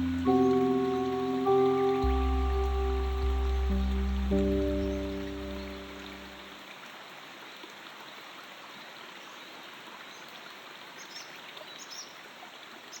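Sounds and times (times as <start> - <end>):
bird chirps: 0.0 - 6.4
stream water running: 0.0 - 13.0.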